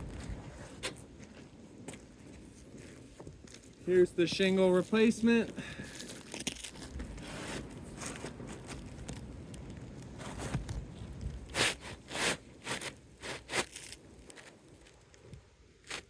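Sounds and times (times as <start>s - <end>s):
shingle scraping on roof: 10.1s - 14.6s.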